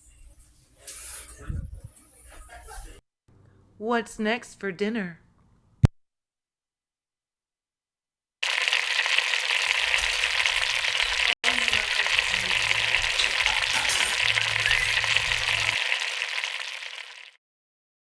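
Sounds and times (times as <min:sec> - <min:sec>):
food frying in hot oil: 0:08.4 - 0:17.4.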